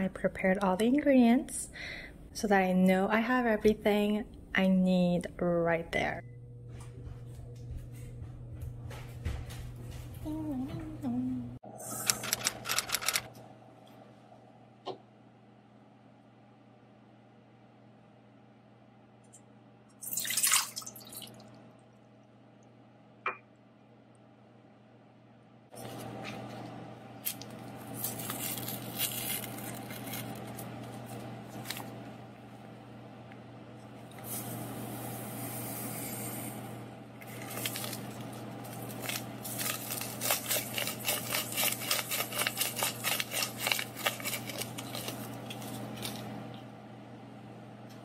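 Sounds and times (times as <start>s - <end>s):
paper packet rustling: 12.2s - 13.3s, 27.2s - 32.0s, 37.2s - 46.3s.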